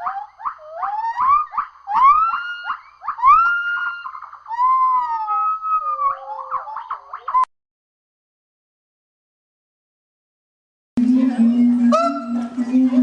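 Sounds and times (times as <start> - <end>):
primate whooping calls: 0.0 - 7.5, 11.7 - 13.0.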